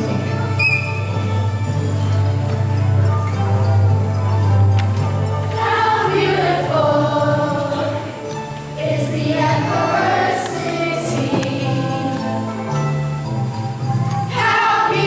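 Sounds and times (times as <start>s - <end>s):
choir singing: 5.5s - 12.6s, 14.3s - 15.0s.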